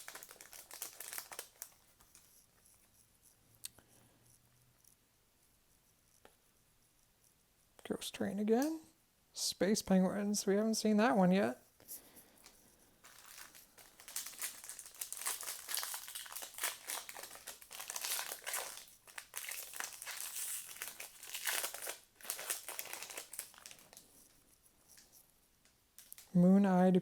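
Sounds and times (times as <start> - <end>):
foil wrapper crinkling: 0.0 - 2.3, 12.3 - 25.0, 26.0 - 26.4.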